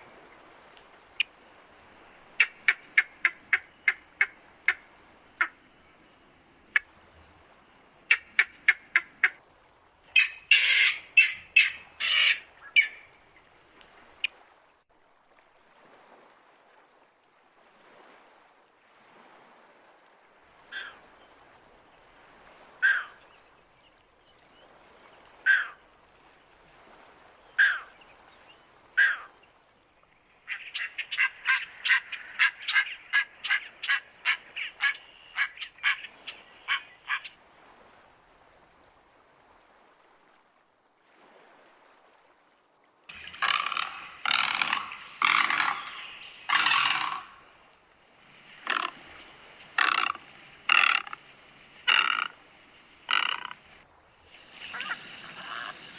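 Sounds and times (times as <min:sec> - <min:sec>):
birds calling: 0:01.2 - 0:06.8, 0:07.6 - 0:09.4, 0:10.2 - 0:13.1, 0:30.2 - 0:37.4, 0:43.1 - 0:55.9.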